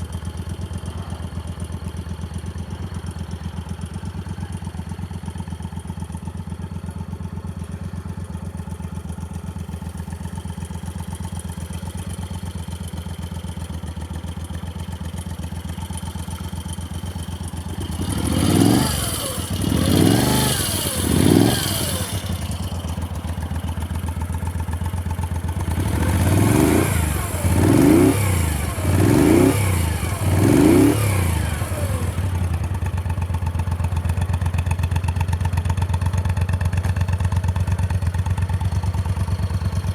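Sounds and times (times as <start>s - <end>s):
motorcycle engine idling: 0.0s - 39.9s
motorcycle engine revving: 9.9s - 39.9s.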